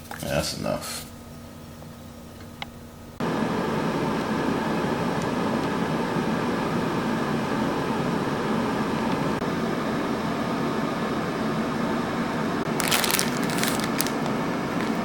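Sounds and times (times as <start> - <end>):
air fryer fan whirring: 1.1 - 15.0
crackling and rustling clicks: 12.7 - 15.0.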